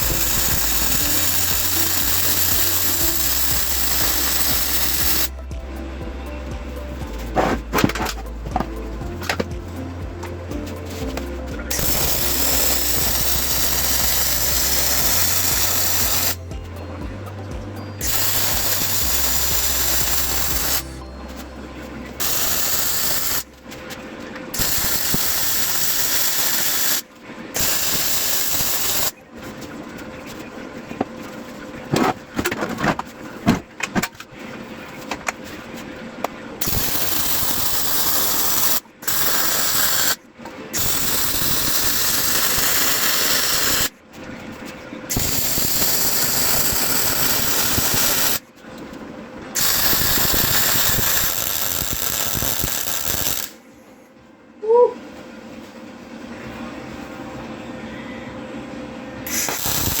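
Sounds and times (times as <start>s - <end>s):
crackling hiss of metal work: 0.0s - 5.4s, 10.8s - 16.4s, 18.0s - 21.0s, 22.2s - 31.9s, 35.4s - 44.0s, 45.1s - 48.5s, 49.6s - 54.0s, 59.2s - 60.0s
low background music: 0.0s - 52.4s, 53.6s - 60.0s.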